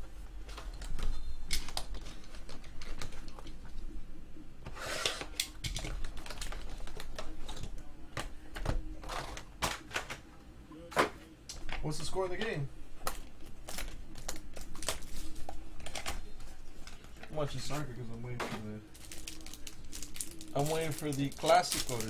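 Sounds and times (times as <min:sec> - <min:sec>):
packaging rustling: 0:05.5 - 0:10.2, 0:13.0 - 0:17.8, 0:18.9 - 0:22.0
wrapper and cardboard crinkling: 0:05.7 - 0:07.7, 0:13.1 - 0:16.2, 0:18.9 - 0:22.0.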